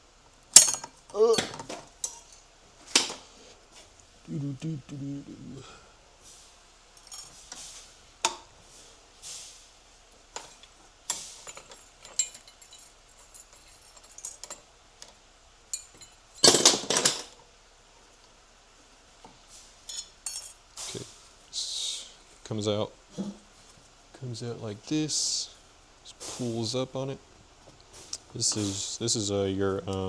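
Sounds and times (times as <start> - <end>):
metal parts rattling: 0.6 - 2.4, 7.0 - 7.4, 10.4 - 14.7, 15.7 - 17.4, 19.9 - 20.6
hand tools clinking on metal: 0.6 - 3.2, 7.0 - 8.4, 10.4 - 17.4, 19.8 - 21.0.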